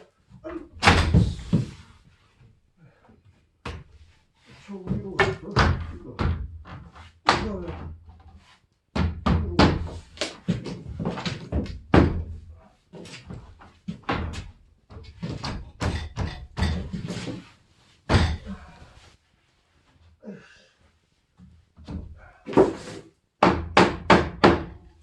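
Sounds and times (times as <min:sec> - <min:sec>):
wooden door frame knocks and thuds: 0:00.7 - 0:01.7, 0:04.9 - 0:08.1, 0:08.9 - 0:12.5, 0:13.3 - 0:17.1, 0:18.1 - 0:18.7, 0:23.4 - 0:24.8.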